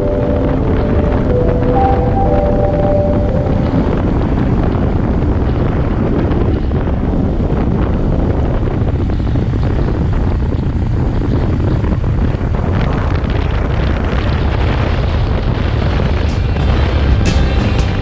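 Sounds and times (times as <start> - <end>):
music: 0.0 - 4.6, 16.2 - 18.0
wind buffeting microphone: 0.0 - 18.0
motorbike running: 5.8 - 18.0.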